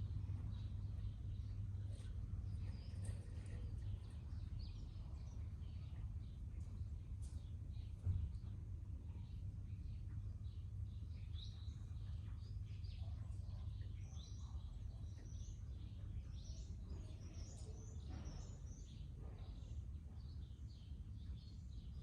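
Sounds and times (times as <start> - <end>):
steady low rumble: 0.0 - 17.4
birds chirping and twittering: 0.0 - 22.0.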